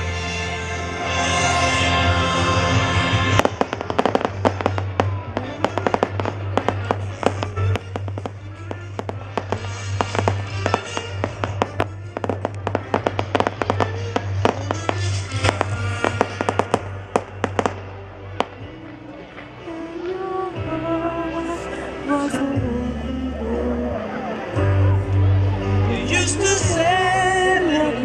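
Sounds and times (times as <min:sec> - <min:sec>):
music playing: 0:00.0 - 0:28.0
fireworks bangs and crackles: 0:02.6 - 0:19.8.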